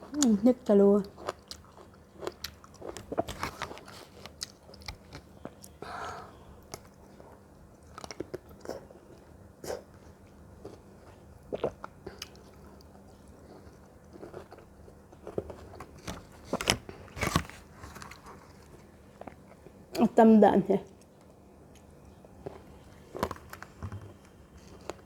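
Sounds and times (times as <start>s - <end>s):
wet chewing: 0.0s - 5.8s, 6.7s - 19.7s
crisp bites and crunches: 2.2s - 5.2s.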